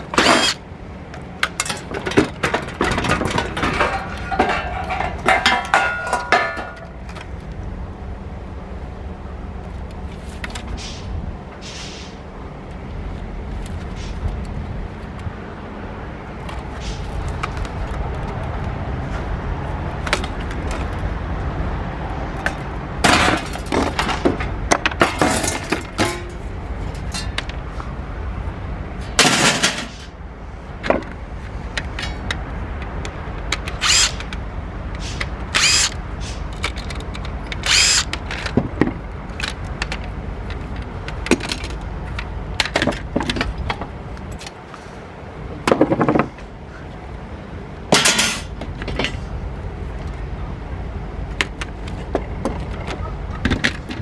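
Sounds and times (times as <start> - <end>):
clicks and knocks of parts: 0.0 - 7.6, 16.3 - 21.2, 22.3 - 28.0, 29.0 - 30.2, 30.8 - 44.8, 47.9 - 49.3, 51.3 - 54.0.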